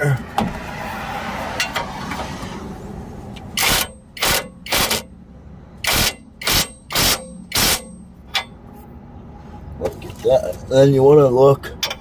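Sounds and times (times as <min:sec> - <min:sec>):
ratchet wrench ratcheting: 0:03.6 - 0:05.1, 0:05.8 - 0:08.4.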